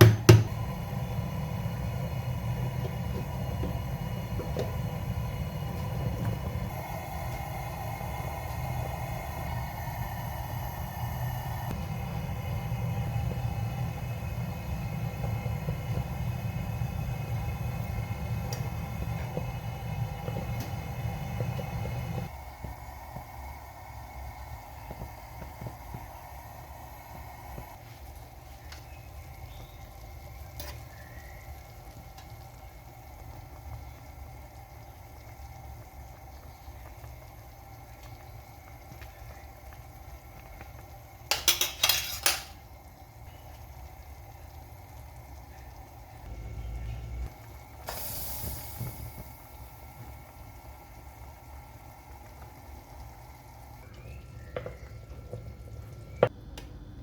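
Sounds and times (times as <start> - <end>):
chicken frying in oil: 0.0 - 57.0
cookware clattering: 41.3 - 42.6.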